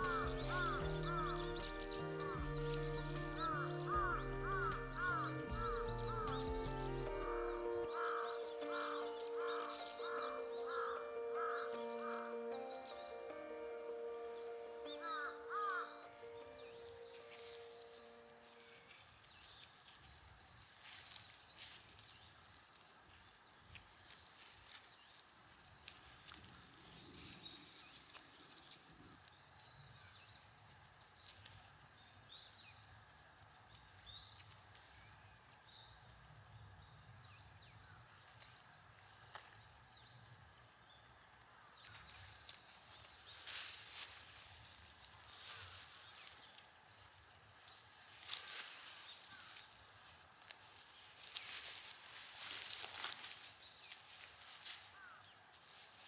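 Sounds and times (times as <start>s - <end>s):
small birds chirping: 0.0s - 56.0s
rustling noise: 38.2s - 56.0s.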